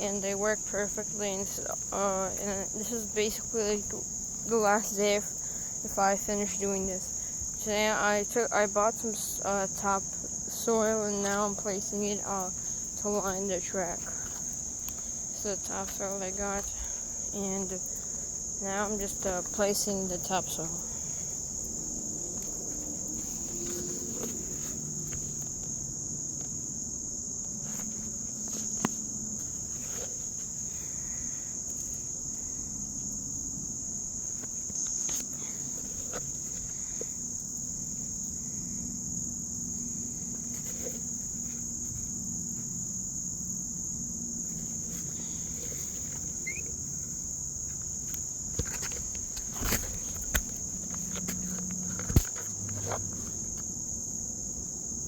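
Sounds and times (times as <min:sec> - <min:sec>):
ticks and knocks handling soil: 0:09.7 - 0:25.8, 0:27.6 - 0:32.2, 0:34.3 - 0:38.4, 0:39.6 - 0:42.8, 0:44.4 - 0:53.7
high-pitched insect chirring: 0:29.4 - 0:52.2.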